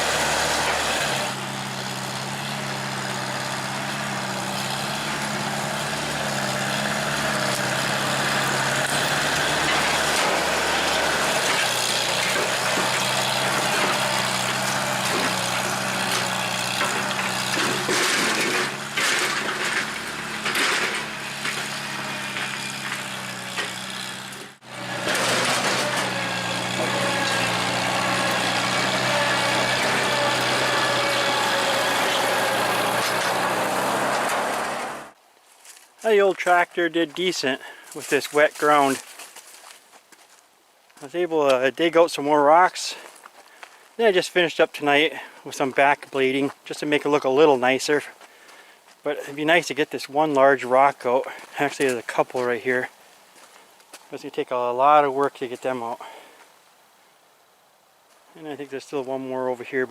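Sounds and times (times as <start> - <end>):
tractor engine running: 0.0 - 35.2, 49.0 - 53.0
knocking and clatter: 8.8 - 34.8.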